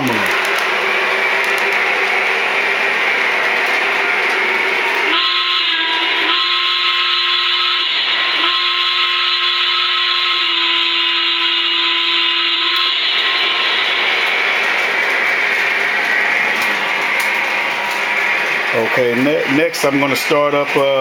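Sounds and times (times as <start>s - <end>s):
steam locomotive whistle: 5.1s - 14.2s.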